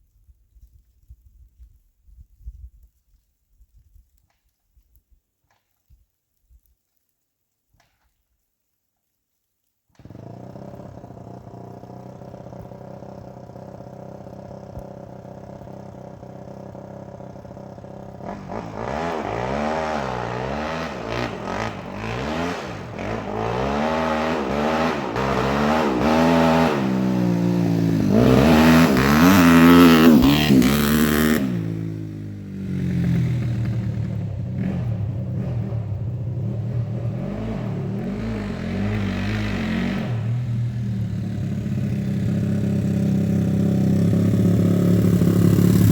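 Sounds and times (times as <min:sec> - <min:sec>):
dirt bike engine revving: 0:10.0 - 0:45.9.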